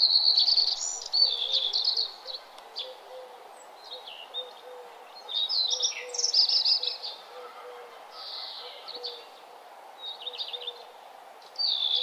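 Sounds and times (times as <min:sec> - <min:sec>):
small birds chirping: 0:00.0 - 0:07.3, 0:08.1 - 0:12.0.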